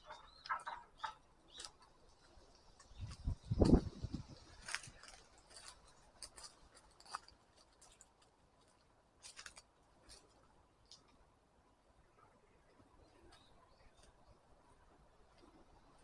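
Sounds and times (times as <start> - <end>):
footsteps on leaf litter and twigs: 2.9 - 10.4.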